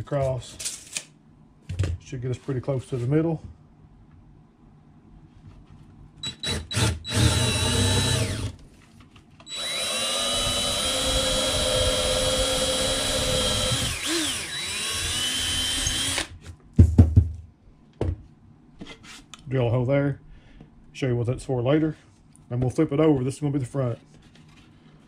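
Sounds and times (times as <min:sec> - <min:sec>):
cordless drill motor whine: 0:06.2 - 0:08.6, 0:09.5 - 0:16.3.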